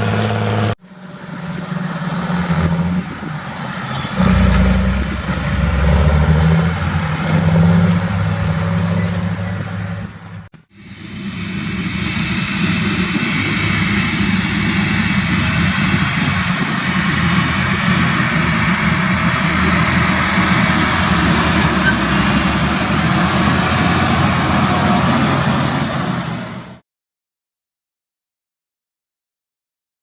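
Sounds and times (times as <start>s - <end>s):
tractor diesel engine running: 0.0s - 26.8s
machinery hiss: 10.7s - 26.8s.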